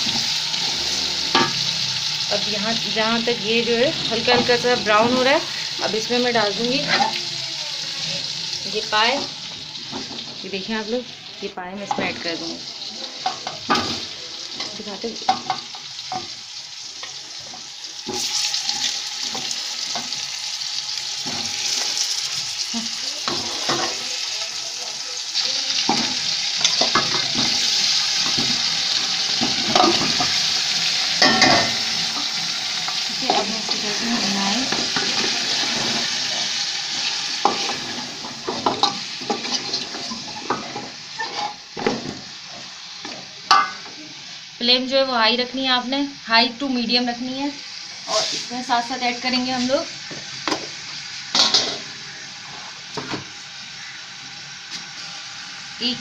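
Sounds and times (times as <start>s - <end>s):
meat sizzling in hot oil: 0.0s - 56.0s
wooden spoon scraping a pot: 34.7s - 41.6s.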